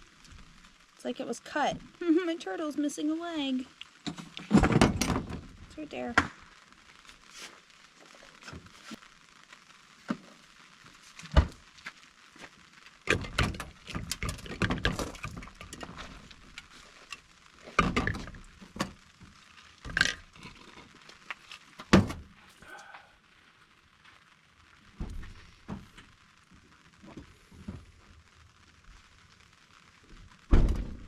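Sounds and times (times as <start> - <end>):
objects being handled and moved: 4.0 - 5.6, 10.0 - 22.6.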